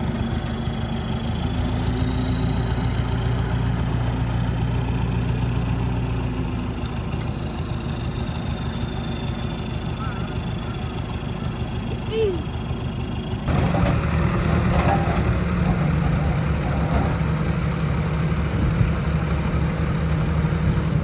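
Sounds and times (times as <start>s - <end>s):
diesel engine running: 0.0s - 21.0s
faint high whine: 0.6s - 10.1s.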